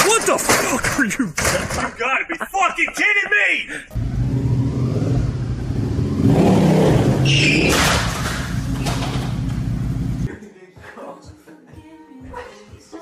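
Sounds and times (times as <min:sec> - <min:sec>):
motorcycle crashing: 0:04.0 - 0:10.1
motorcycle engine revving: 0:04.0 - 0:10.3.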